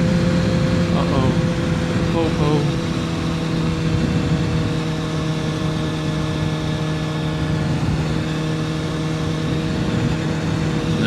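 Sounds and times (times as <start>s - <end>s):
motorcycle engine running: 0.0s - 11.0s
wind noise on microphone: 2.7s - 11.0s.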